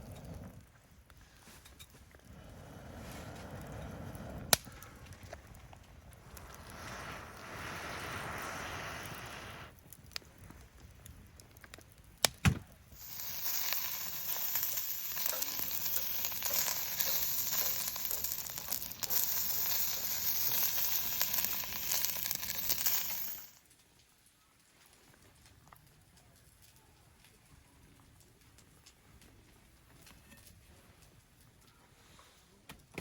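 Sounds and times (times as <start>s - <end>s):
food sizzling in a pan: 6.7s - 9.8s, 13.0s - 23.6s.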